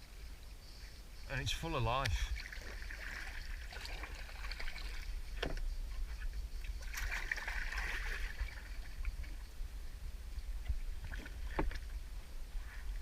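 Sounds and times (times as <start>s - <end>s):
paddle splashing water: 1.4s - 9.5s, 10.6s - 13.0s.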